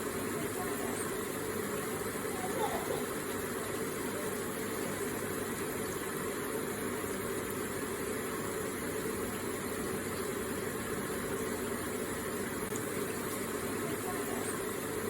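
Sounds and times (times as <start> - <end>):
water flowing steadily: 0.0 - 15.0.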